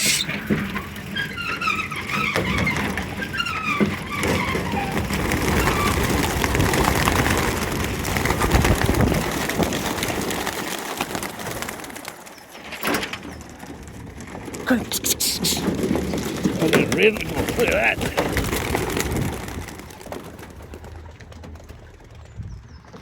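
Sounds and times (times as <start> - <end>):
bird calls: 0.0 - 0.4
pigeon wingbeats: 4.4 - 12.3, 15.6 - 22.2.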